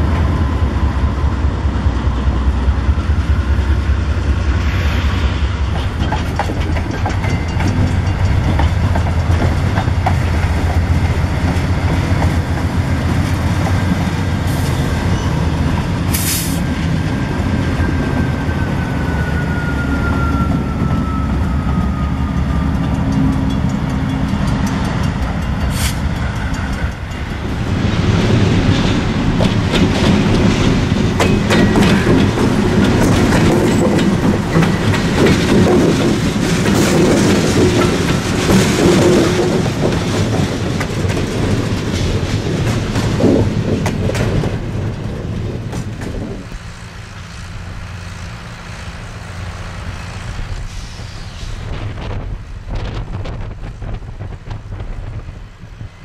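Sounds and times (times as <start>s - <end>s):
diesel locomotive engine rumble: 0.0s - 56.0s
wheels clattering over rail joints: 5.6s - 18.4s, 20.4s - 50.7s.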